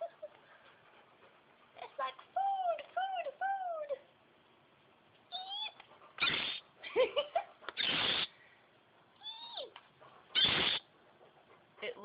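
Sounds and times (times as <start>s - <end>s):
baby bird whistled calls: 5.4s - 6.6s, 7.8s - 8.3s, 10.4s - 10.8s
harsh hissy bird bursts: 6.2s - 6.6s, 7.8s - 8.3s, 10.4s - 10.8s.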